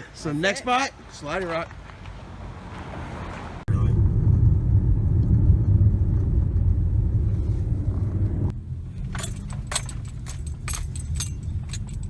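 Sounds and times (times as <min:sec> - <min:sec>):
car rumble from inside: 0:03.6 - 0:12.0.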